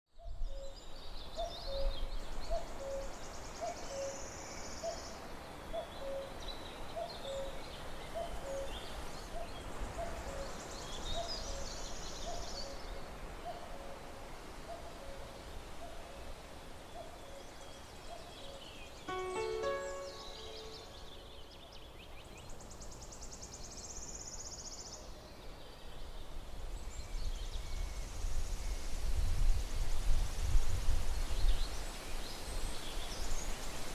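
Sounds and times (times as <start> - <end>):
low two-note call: 19.1 - 21.3
high bird chirps: 19.1 - 21.4.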